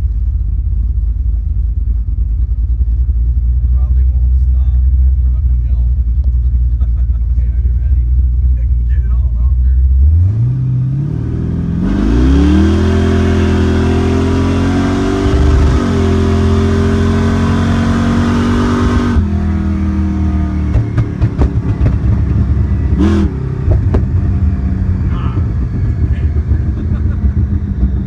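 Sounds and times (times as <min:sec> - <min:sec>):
exhaust crackles and pops: 0:00.0 - 0:09.5, 0:15.0 - 0:17.5, 0:18.2 - 0:28.0
supercharged engine revving: 0:09.8 - 0:28.0.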